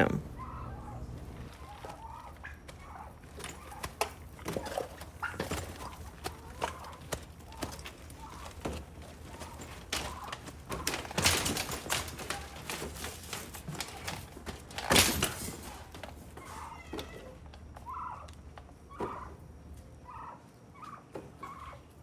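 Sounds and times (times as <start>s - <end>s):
turkey gobbling: 0.3s - 10.8s, 16.4s - 22.0s
knocks and scraping in brooder: 0.4s - 19.4s, 20.0s - 21.9s.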